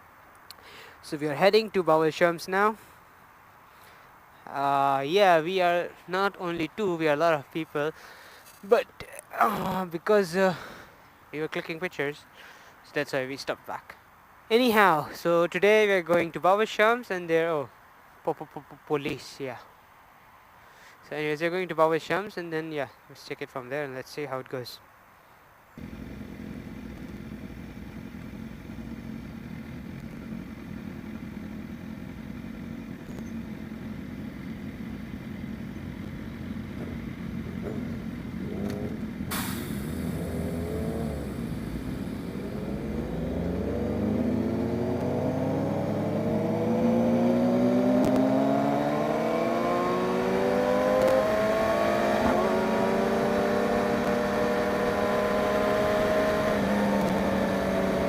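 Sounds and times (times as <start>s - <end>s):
motorcycle engine accelerating: 25.8s - 58.0s.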